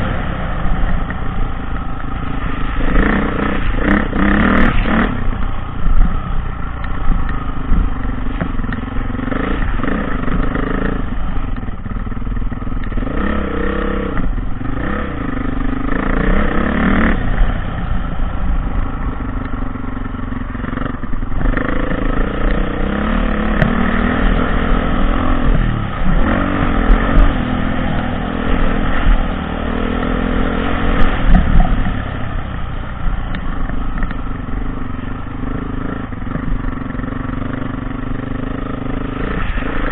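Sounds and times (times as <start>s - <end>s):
dirt bike engine revving: 2.2s - 6.2s, 13.0s - 17.5s, 20.6s - 33.3s.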